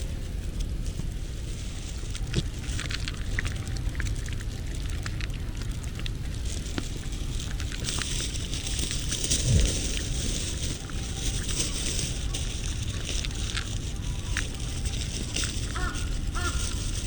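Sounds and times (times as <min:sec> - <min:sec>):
crackling clicks: 0:00.0 - 0:17.0
steady hiss: 0:00.0 - 0:17.0
wind rumble on microphone: 0:00.0 - 0:17.0.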